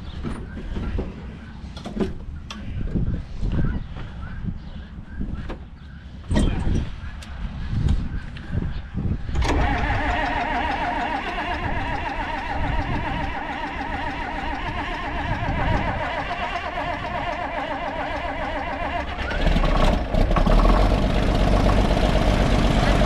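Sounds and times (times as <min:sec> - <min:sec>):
low engine rumble: 0:00.0 - 0:23.0
engine running: 0:09.4 - 0:23.0.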